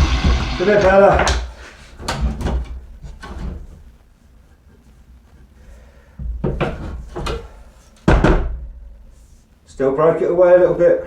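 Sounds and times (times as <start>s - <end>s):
loud sharp knock: 0.0s - 1.6s.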